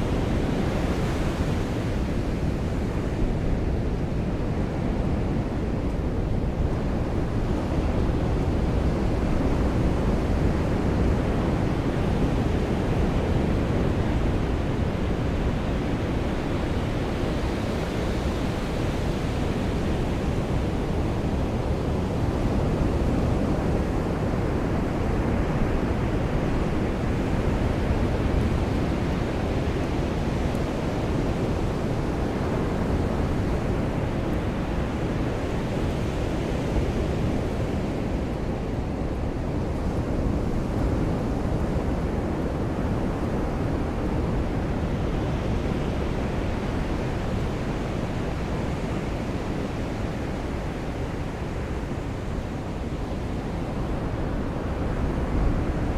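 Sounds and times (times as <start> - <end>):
ocean surf washing on beach: 0.0 - 55.9.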